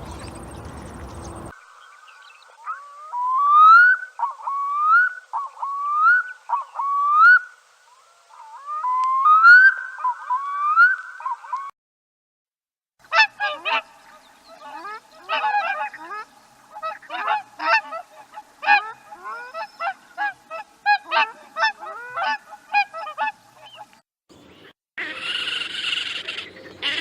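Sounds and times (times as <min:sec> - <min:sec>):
geese honking: 0:00.0 - 0:01.5, 0:14.6 - 0:23.4.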